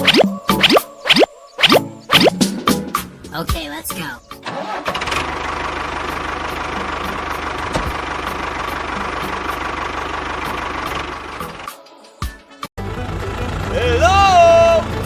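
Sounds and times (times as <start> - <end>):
tractor engine running: 4.4 - 11.7, 12.8 - 15.0.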